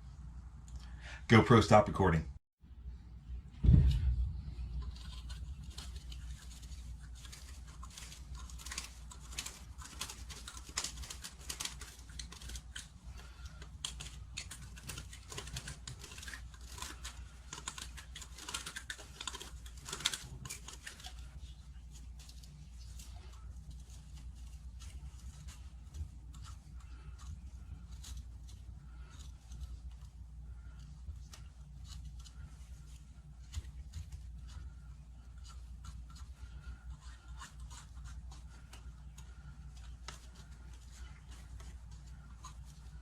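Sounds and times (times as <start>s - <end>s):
steady low hum: 0.0s - 43.0s
knife scraping plastic pipe: 3.8s - 43.0s.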